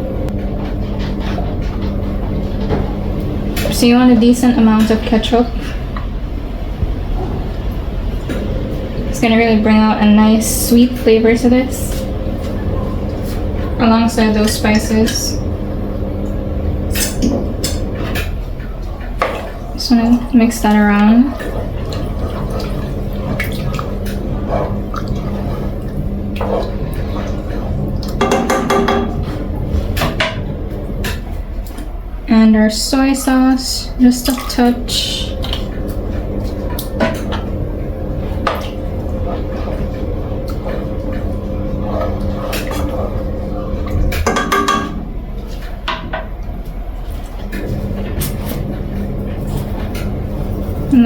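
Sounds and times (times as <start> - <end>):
steady low hum: 0.0 - 51.0
clattering against pot: 28.1 - 29.4, 44.1 - 45.0.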